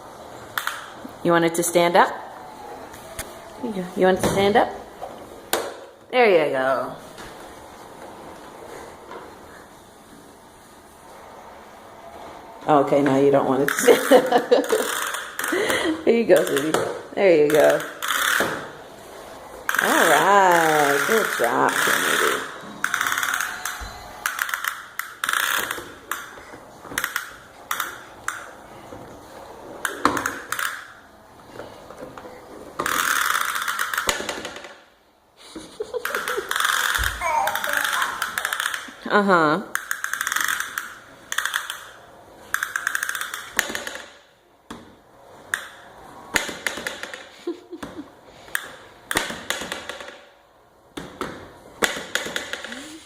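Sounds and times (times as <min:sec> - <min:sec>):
toy vacuum clicking and rattling: 0:20.9 - 0:28.5, 0:32.8 - 0:34.7, 0:35.9 - 0:39.0, 0:39.7 - 0:44.1.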